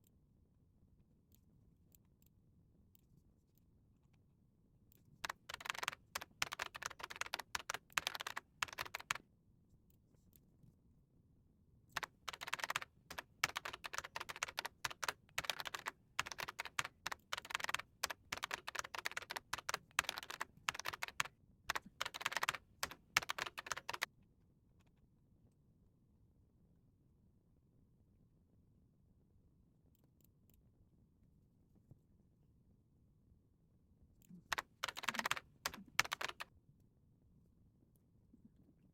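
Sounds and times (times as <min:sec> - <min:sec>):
typing on computer keyboard: 0:05.2 - 0:09.2, 0:12.0 - 0:24.1, 0:34.4 - 0:36.5.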